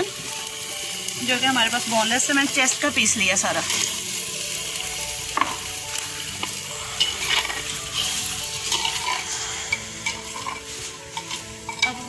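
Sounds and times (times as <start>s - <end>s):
chicken sizzling in hot oil: 0.0s - 12.0s
ladle clinking and scraping pot: 6.4s - 12.0s.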